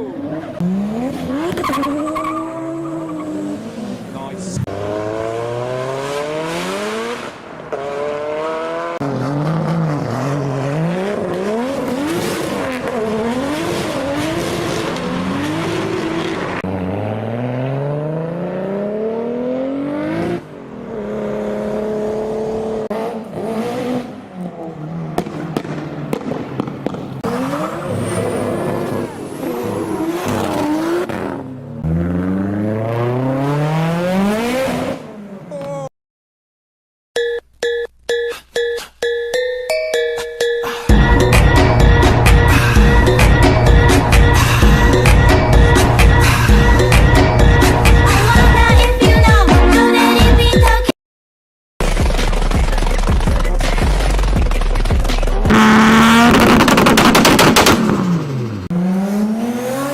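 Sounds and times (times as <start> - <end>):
car engines revving hard: 0.0 - 35.6, 51.8 - 59.9.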